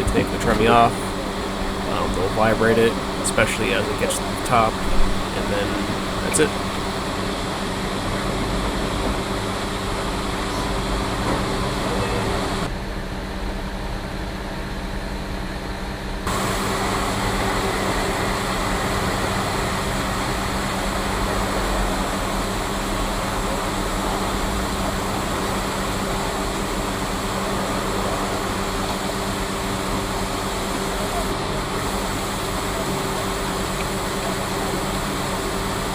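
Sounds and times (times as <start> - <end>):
diesel truck engine running: 0.0 - 7.1.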